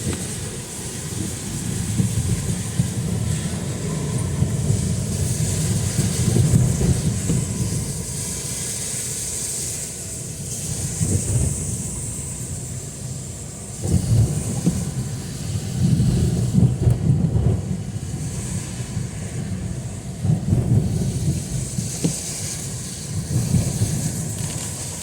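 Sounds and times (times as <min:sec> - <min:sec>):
heavy rain hissing: 0:00.0 - 0:25.0
wind buffeting microphone: 0:00.0 - 0:25.0.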